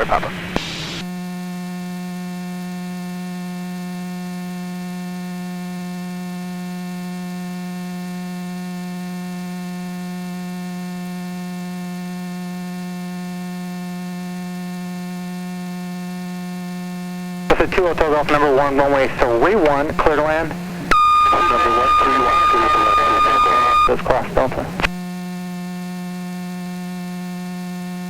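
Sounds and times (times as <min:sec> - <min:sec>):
electrical hum: 0:00.0 - 0:01.1, 0:17.4 - 0:25.0.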